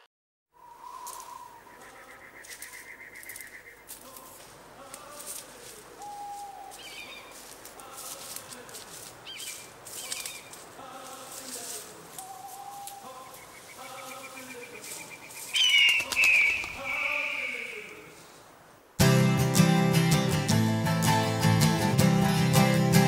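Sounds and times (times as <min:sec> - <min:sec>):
birds calling: 0:00.5 - 0:18.3.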